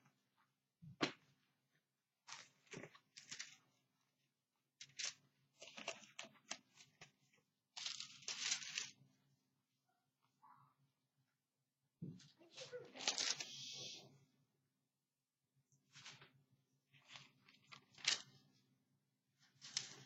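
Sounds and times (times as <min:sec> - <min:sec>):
paper pages rustling: 0:02.3 - 0:03.8, 0:04.8 - 0:09.0, 0:12.5 - 0:13.9, 0:15.9 - 0:18.6, 0:19.4 - 0:20.0.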